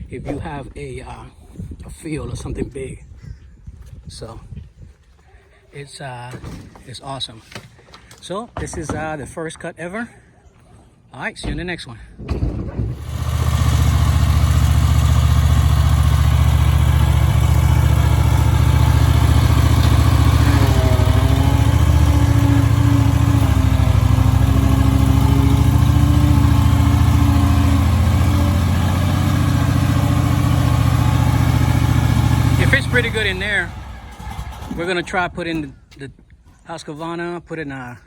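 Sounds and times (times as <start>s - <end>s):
lawn mower engine running: 12.9s - 35.7s.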